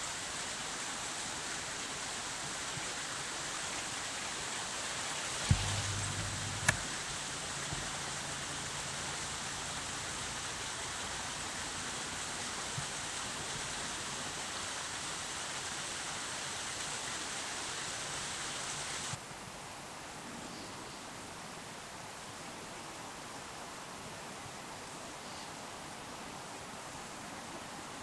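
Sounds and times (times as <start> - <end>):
river water rushing: 0.0 - 19.2
brief low hum: 5.4 - 8.0
sharp clicks: 5.5 - 6.9.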